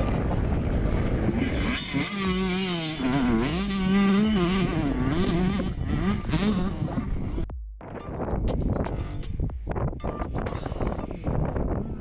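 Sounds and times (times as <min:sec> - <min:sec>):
motocross bike engine revving: 0:00.0 - 0:07.5.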